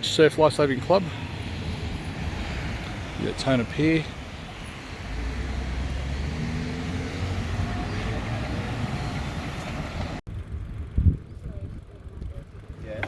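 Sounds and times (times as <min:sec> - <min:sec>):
wind rumble on microphone: 0:09.3 - 0:12.9.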